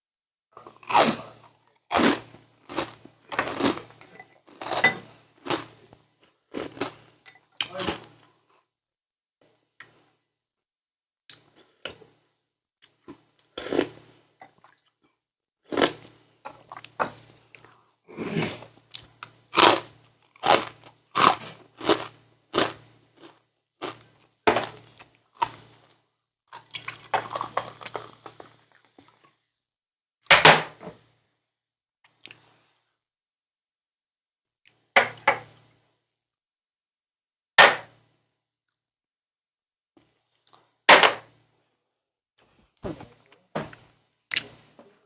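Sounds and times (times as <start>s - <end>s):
person chewing and crunching food: 0.6s - 8.2s, 15.7s - 29.3s.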